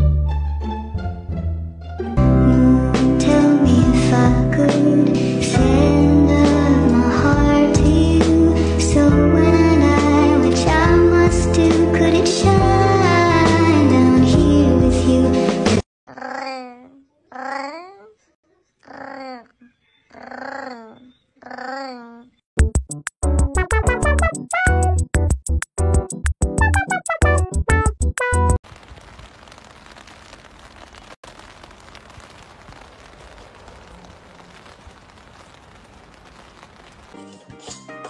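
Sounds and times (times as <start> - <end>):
background music: 0.0 - 15.8, 37.2 - 38.0
rain on wet brick paving: 28.6 - 37.8.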